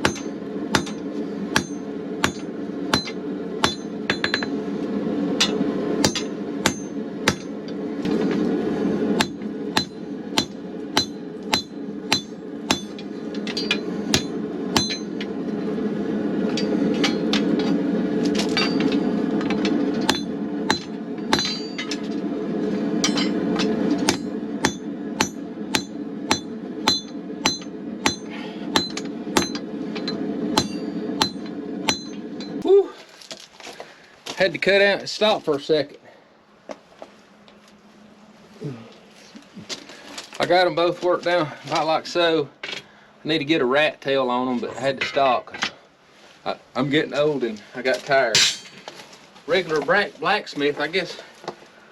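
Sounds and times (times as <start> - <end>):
hammer striking steel on anvil: 0.0 - 4.6, 5.4 - 7.6, 9.2 - 15.2, 16.5 - 17.6, 18.6 - 22.0, 23.0 - 32.6, 48.4 - 48.8
gas forge burner rushing: 0.0 - 32.9.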